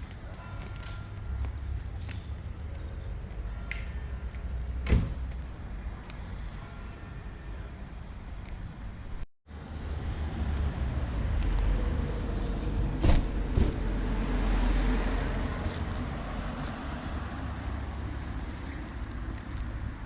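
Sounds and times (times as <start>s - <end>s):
car passing: 9.5s - 20.0s.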